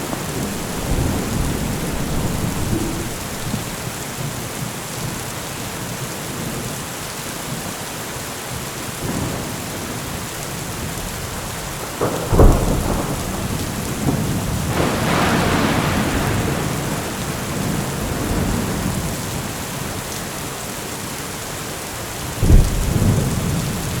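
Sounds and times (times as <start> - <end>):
sharp thunderclap: 0.0 - 4.0, 11.9 - 19.1, 22.4 - 23.8
rolling thunder: 0.0 - 4.1, 11.8 - 19.4, 22.4 - 24.0
heavy rain: 0.0 - 24.0.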